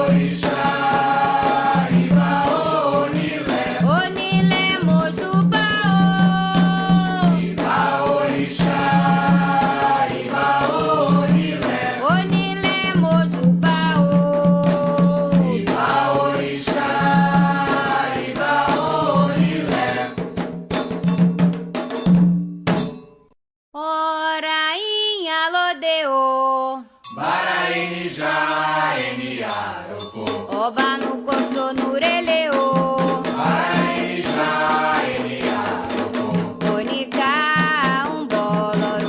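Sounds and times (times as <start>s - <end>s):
voices chanting: 0.0s - 3.8s, 6.6s - 12.0s, 15.4s - 20.1s, 27.1s - 30.5s, 33.4s - 36.5s
repeating drum beat: 0.0s - 23.0s, 27.2s - 39.0s.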